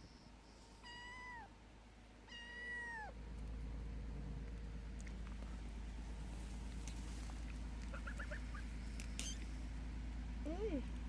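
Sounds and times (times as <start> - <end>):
steady low rumble: 0.0 - 11.0
cat meowing: 0.8 - 1.5, 2.3 - 3.1.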